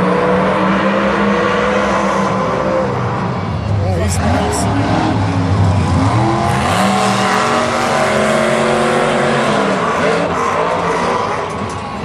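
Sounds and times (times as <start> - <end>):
monster truck engines at full throttle: 0.0 - 12.0.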